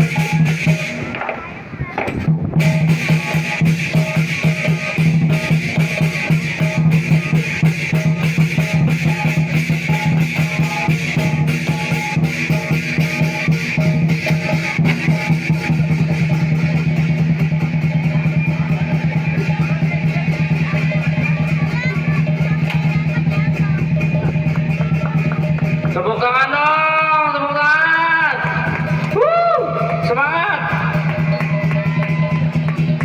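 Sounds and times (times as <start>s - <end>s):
clashing cymbals: 0.0s - 1.2s, 2.5s - 26.0s
big drum beating: 0.0s - 33.0s.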